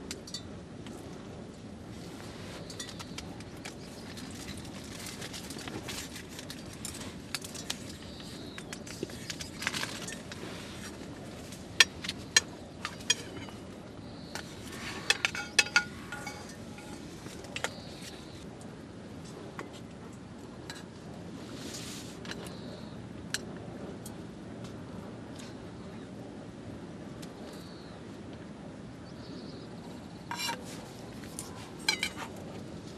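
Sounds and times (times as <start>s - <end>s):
steady low background noise: 0.0s - 32.9s
metal cookware clinking: 15.1s - 17.1s, 31.8s - 32.3s.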